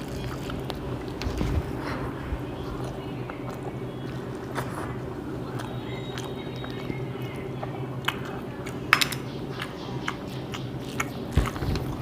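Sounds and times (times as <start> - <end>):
chewing and mouth sounds: 0.0 - 12.0
steady low hum: 0.0 - 12.0.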